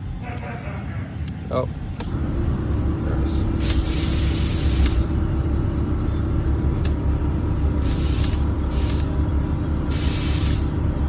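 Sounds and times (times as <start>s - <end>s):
low mechanical rumble: 0.0s - 11.0s
air suspension hissing: 3.0s - 11.0s.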